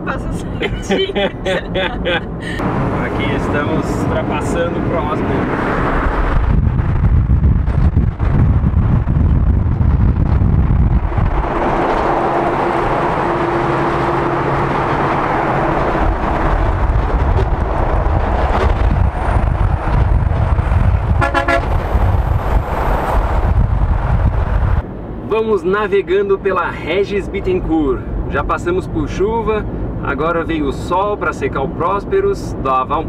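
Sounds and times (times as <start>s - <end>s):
car road noise: 0.0s - 33.0s
wind buffeting: 2.0s - 25.2s
vehicle horn toot: 21.2s - 21.8s.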